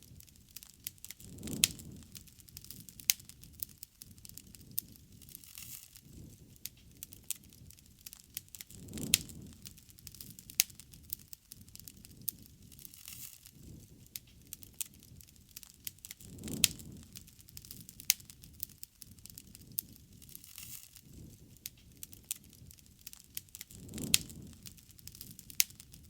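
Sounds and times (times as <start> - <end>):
low rush of flames: 0.0 - 26.0
wood crackling and popping: 0.0 - 26.0.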